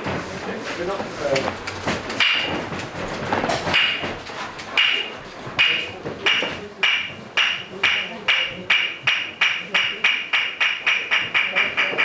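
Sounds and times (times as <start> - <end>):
wooden clappers striking: 1.4 - 12.0.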